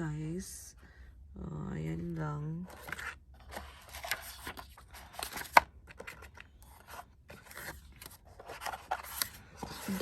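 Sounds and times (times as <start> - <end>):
packaging rustling: 2.7 - 10.0.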